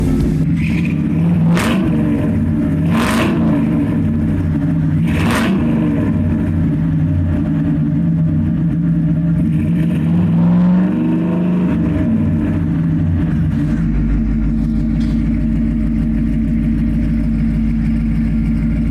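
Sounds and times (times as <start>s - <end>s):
tractor engine running: 0.0s - 0.7s.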